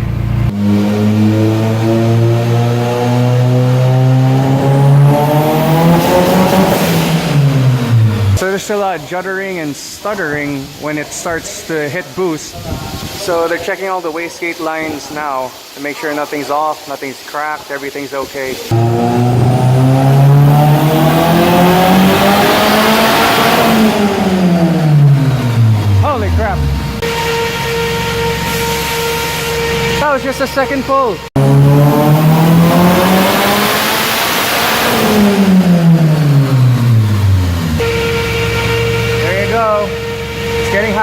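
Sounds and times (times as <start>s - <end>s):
car engine revving on dyno: 0.0s - 8.4s, 18.6s - 41.0s.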